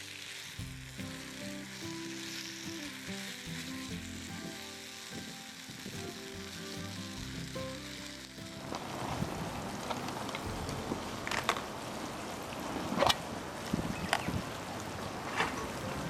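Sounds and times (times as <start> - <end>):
soft background music: 0.0 - 12.0
meat sizzling: 0.0 - 16.0.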